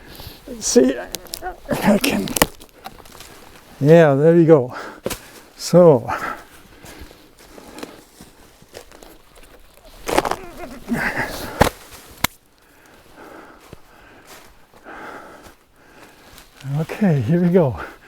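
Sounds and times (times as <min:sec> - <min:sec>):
rotten wood crunching and crackling: 0:00.0 - 0:18.0
wood snapping: 0:00.7 - 0:03.6, 0:08.7 - 0:12.5.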